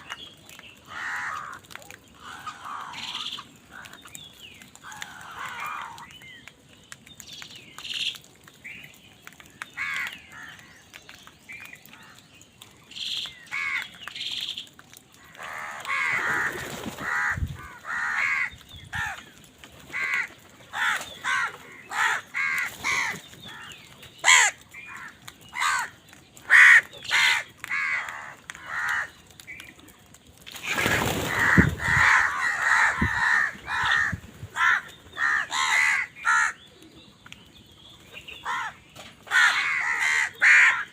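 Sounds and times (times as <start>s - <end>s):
crows cawing: 0.8s - 4.0s, 4.8s - 6.1s, 15.2s - 19.2s, 19.9s - 29.2s, 30.9s - 36.6s, 38.4s - 40.9s.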